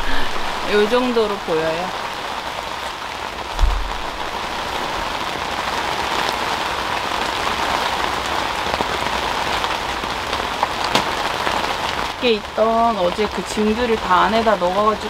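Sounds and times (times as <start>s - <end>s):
heavy rain on tent fabric: 0.0s - 15.0s
low thump: 3.5s - 5.0s.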